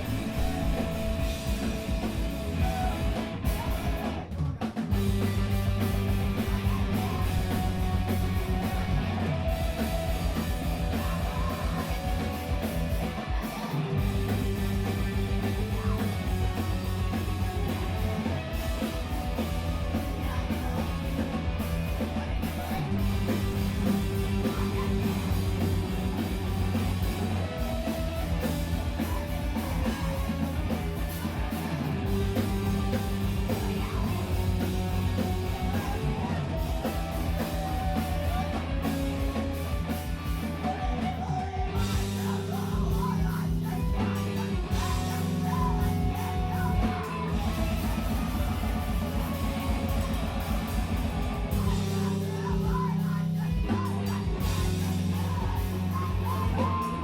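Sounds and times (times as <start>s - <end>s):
bass guitar: 0.0s - 57.0s
distorted electric guitars: 0.0s - 57.0s
drum kit: 0.0s - 57.0s.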